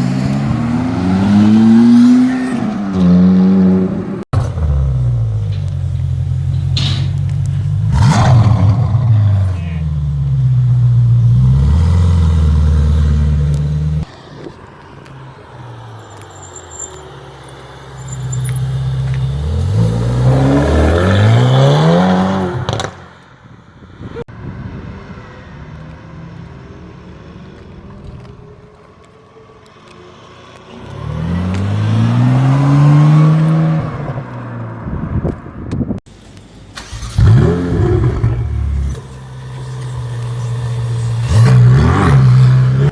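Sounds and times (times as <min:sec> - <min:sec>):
sports car engines accelerating: 0:00.0 - 0:05.9, 0:07.2 - 0:14.0, 0:18.4 - 0:23.0, 0:30.2 - 0:34.8, 0:36.8 - 0:42.9.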